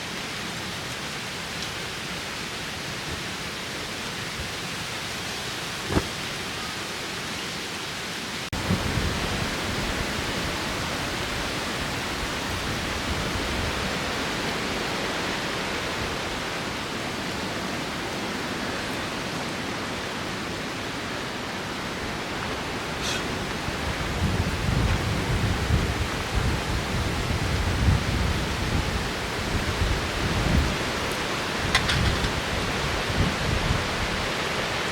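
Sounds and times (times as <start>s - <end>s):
low rumbling wind gusts on microphone: 8.6s - 16.8s, 21.9s - 34.9s
strong wind rushing: 22.5s - 34.3s.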